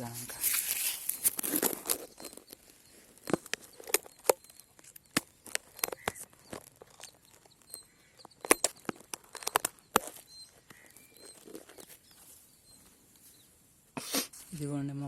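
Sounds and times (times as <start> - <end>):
corn leaves rustling and snapping: 0.0 - 2.5
faint bird chirps: 0.0 - 15.0.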